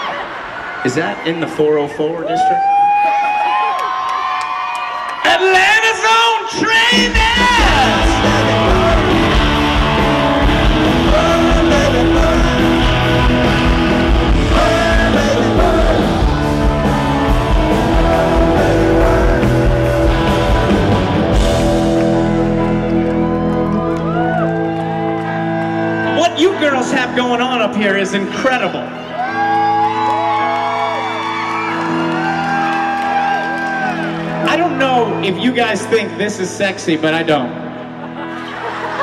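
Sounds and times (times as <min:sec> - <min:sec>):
rock band playing: 0:06.0 - 0:39.0
person singing: 0:06.9 - 0:20.5.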